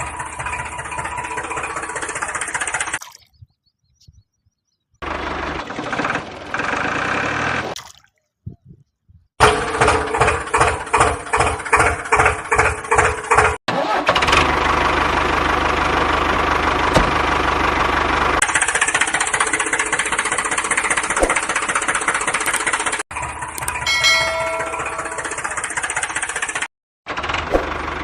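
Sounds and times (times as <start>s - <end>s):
engine running: 0.0s - 3.0s, 5.0s - 7.8s, 9.4s - 28.0s.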